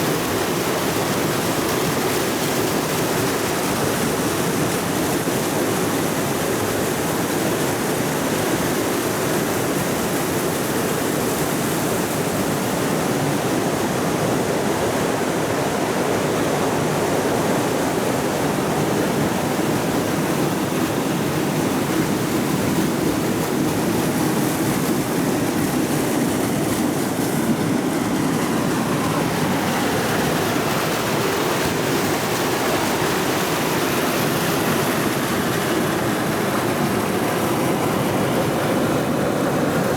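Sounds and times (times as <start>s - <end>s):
creek running over rocks: 16.7s - 39.9s.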